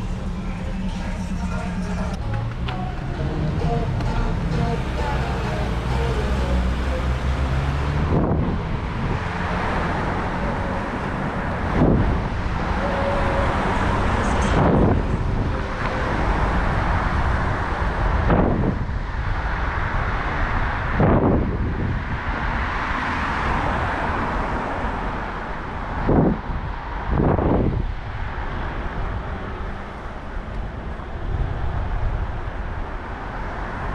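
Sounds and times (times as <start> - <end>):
street traffic passing: 0.0 - 33.9
wind buffeting microphone: 7.8 - 33.9.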